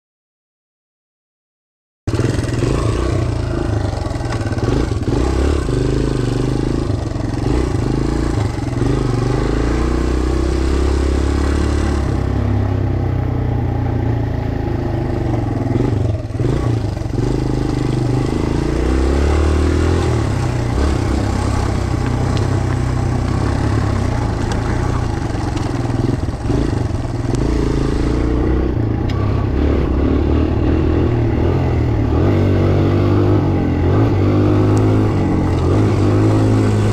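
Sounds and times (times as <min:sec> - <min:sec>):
dirt bike engine revving: 0:02.1 - 0:36.9.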